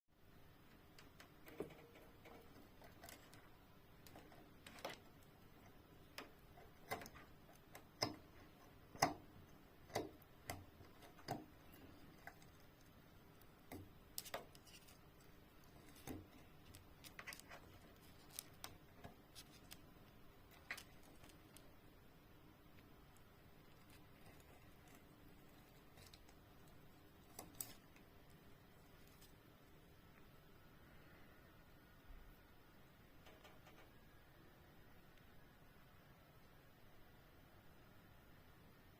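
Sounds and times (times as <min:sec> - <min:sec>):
plastic cable tie clicking in washing machine: 0:00.7 - 0:12.9.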